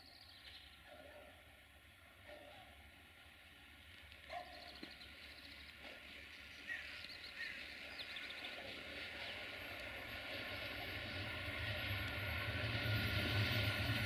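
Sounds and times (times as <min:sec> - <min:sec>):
train rumble and hiss: 0:00.0 - 0:14.0.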